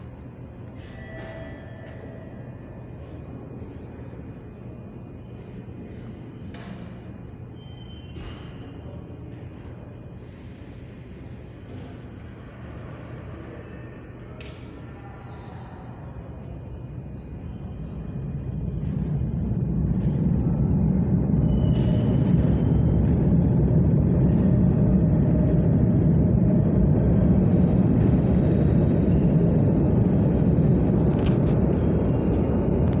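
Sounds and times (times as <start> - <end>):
brief high squeal: 0.8 - 2.3, 7.5 - 9.0, 14.8 - 16.0
train rumbling: 15.1 - 33.0.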